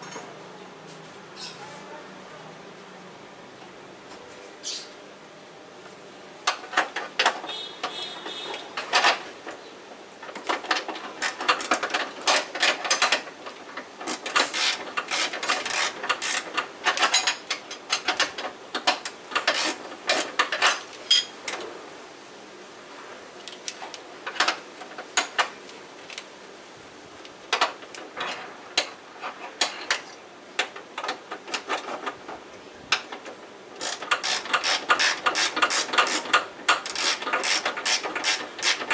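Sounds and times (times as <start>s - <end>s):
metal tools clinking on engine parts: 0.0s - 0.4s, 14.1s - 18.3s, 19.4s - 21.4s.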